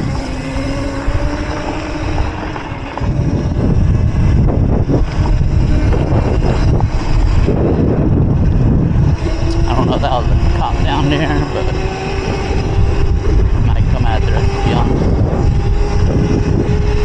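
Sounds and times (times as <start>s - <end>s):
electric motor whining: 0.0s - 17.0s
wind rumble on microphone: 0.0s - 17.0s.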